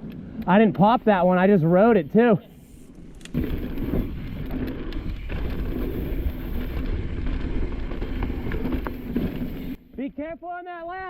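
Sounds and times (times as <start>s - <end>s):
bike clattering over rough ground: 3.1s - 9.8s.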